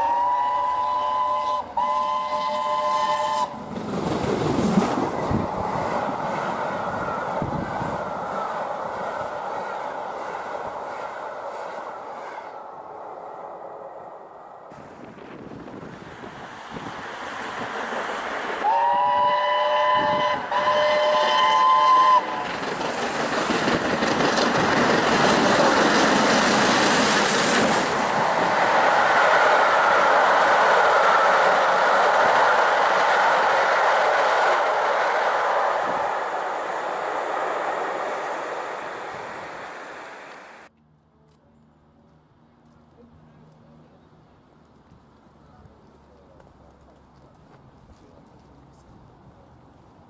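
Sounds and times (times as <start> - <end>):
steam locomotive whistle blasts: 0.0 - 3.6, 18.6 - 22.4
train passing: 0.0 - 40.7.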